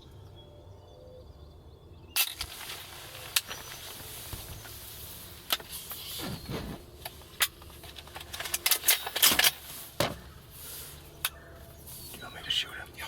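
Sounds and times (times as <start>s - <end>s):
gun metallic clicks and rattles: 7.0s - 10.2s.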